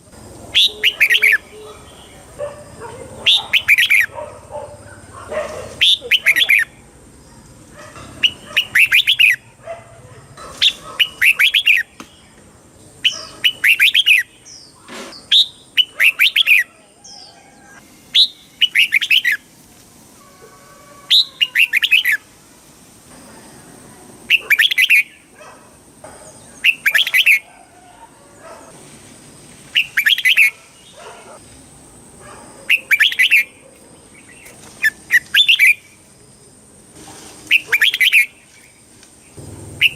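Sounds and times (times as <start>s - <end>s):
bulbul singing warbled phrases: 0.5s - 4.2s, 5.7s - 7.4s, 8.2s - 9.6s, 10.6s - 19.5s, 26.6s - 27.5s, 32.6s - 36.0s, 39.3s - 39.9s.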